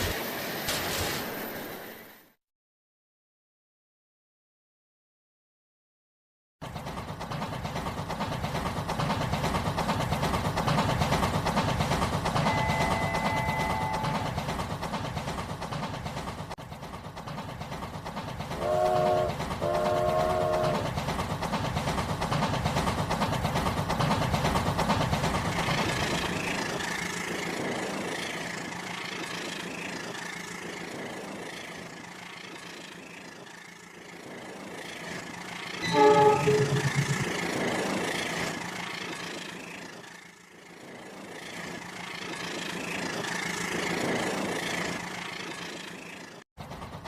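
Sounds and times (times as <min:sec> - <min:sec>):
toy train horn toots: 0:18.6 - 0:20.8, 0:35.8 - 0:37.3.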